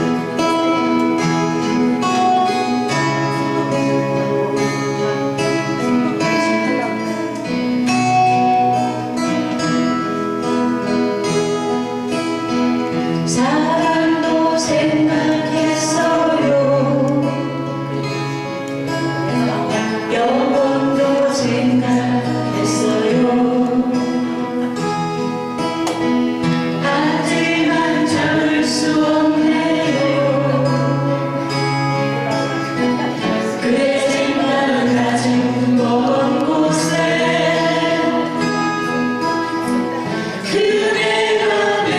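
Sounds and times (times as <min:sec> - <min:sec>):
acoustic guitar: 0:00.0 - 0:41.9
person singing: 0:12.9 - 0:18.0, 0:19.3 - 0:24.7, 0:26.5 - 0:32.1, 0:32.8 - 0:41.9.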